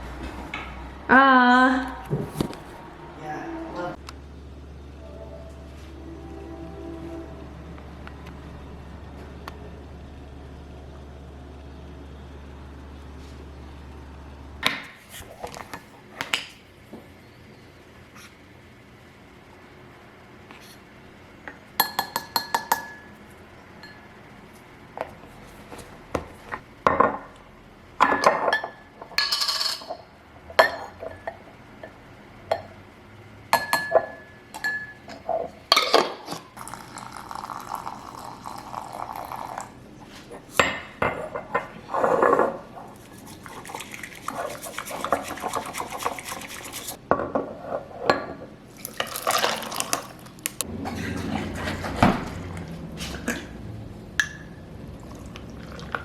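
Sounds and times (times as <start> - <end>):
water running: 36.6 - 39.8, 42.9 - 47.0, 48.8 - 52.7
dishes and cutlery clinking: 50.8 - 52.1.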